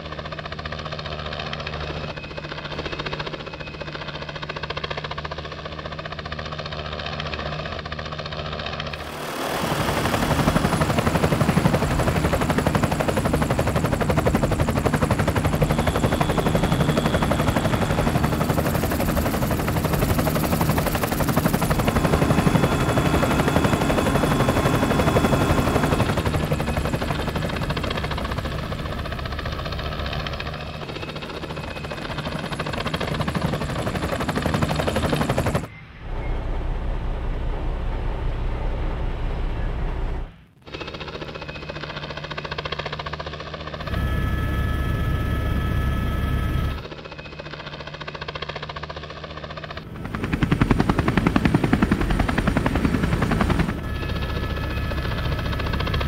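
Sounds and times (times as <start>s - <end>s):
helicopter rotor blades chopping: 0.0s - 35.7s, 36.5s - 56.0s
deep rumble: 36.0s - 40.4s.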